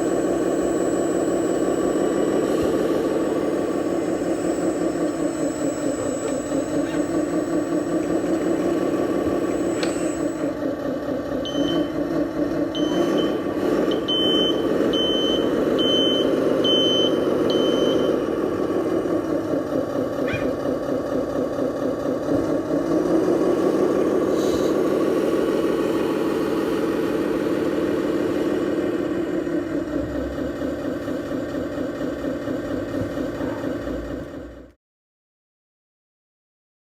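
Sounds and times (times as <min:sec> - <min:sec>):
reversing beeper: 0:00.0 - 0:10.7, 0:11.4 - 0:12.1, 0:12.7 - 0:19.1, 0:24.0 - 0:29.9
model truck engine running: 0:00.0 - 0:34.8.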